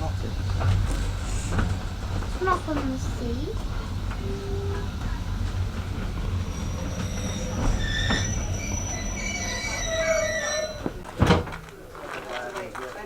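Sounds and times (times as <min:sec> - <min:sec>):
wheels squealing on rails: 0:00.0 - 0:11.2
railway carriage rumbling: 0:00.0 - 0:13.0.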